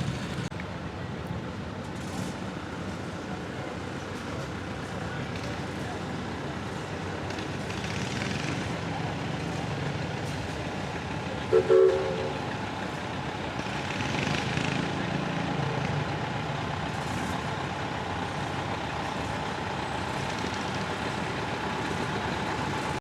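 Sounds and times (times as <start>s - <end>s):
engine running steadily: 0.0s - 23.0s
short loud horn toots: 11.5s - 12.4s.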